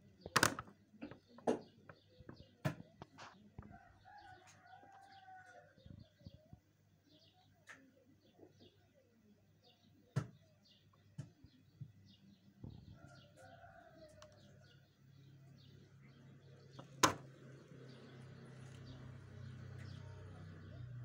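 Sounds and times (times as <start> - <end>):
small birds chirping: 0.0 - 21.0
sharp clicks and knocks: 0.2 - 3.4, 16.8 - 17.3.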